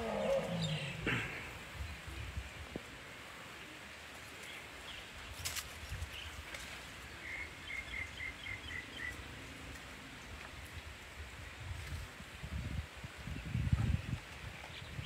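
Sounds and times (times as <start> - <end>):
rain hiss: 0.0 - 13.7.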